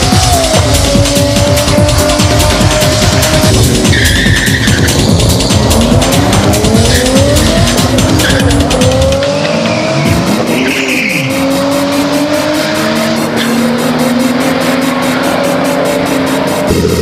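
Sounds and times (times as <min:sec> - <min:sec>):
car engines accelerating: 0:00.0 - 0:17.0.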